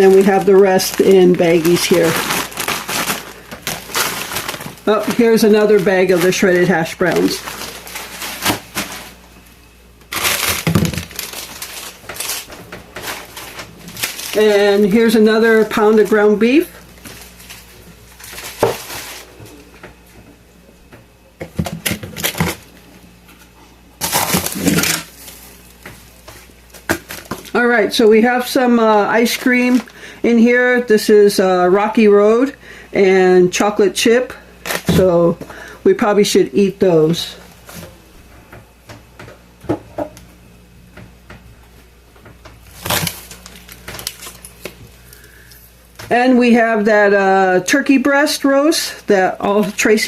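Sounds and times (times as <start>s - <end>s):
knocks of frozen packages: 0.0s - 9.2s, 10.0s - 16.0s, 17.0s - 20.0s, 21.4s - 22.7s, 24.0s - 27.6s, 42.2s - 44.9s
plastic bag crinkling: 0.0s - 19.7s, 24.0s - 30.1s, 42.6s - 45.6s.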